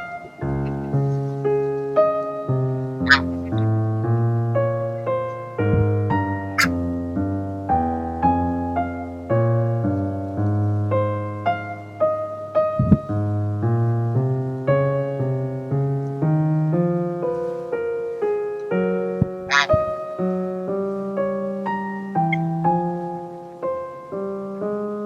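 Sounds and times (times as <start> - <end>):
soft piano music: 0.0 - 25.0
low thump: 5.7 - 6.2.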